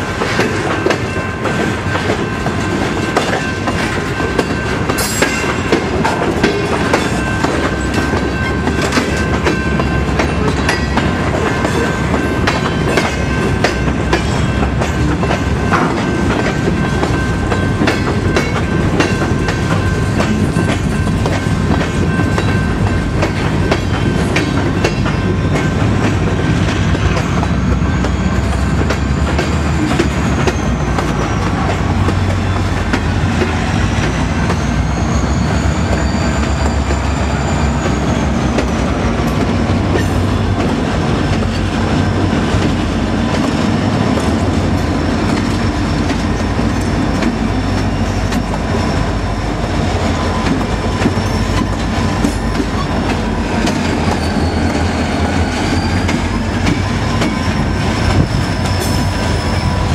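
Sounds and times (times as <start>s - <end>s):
freight train rumbling past: 0.0s - 59.9s
wheels clacking over rail joints: 0.0s - 59.9s
faint wheel squeal: 34.5s - 38.5s, 53.8s - 59.9s.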